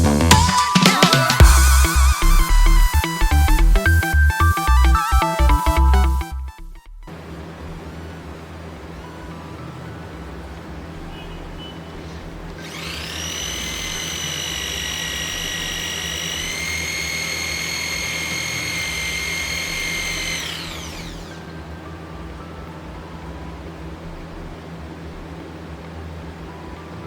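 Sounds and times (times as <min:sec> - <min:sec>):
electric drill motor whining: 0:12.6 - 0:21.4.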